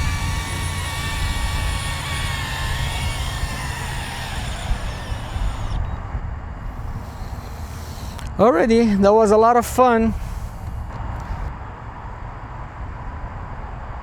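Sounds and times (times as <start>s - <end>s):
drone propellers whining: 0.0s - 8.8s.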